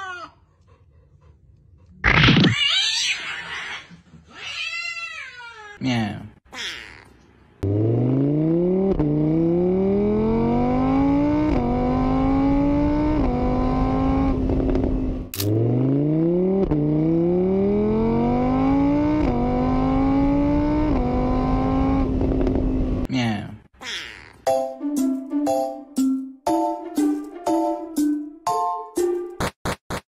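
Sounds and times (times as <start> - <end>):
car engine accelerating through gears: 7.6 - 23.1.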